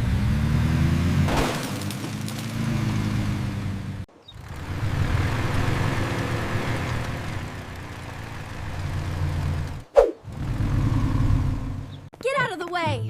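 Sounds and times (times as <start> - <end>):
heavy vehicle engine humming: 2.2 - 12.1.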